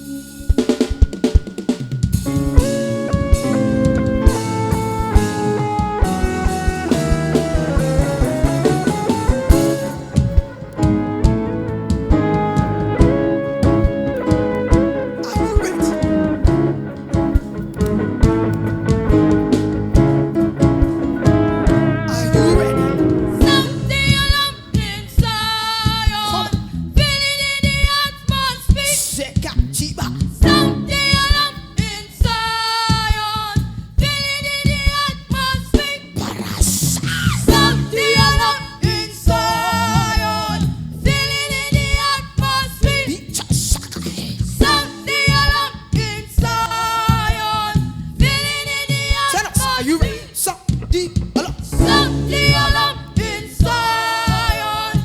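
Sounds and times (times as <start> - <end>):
instrumental backing with beat: 0.0 - 26.2, 30.4 - 34.2, 37.3 - 42.2, 51.7 - 55.0
gospel singers: 0.0 - 55.0.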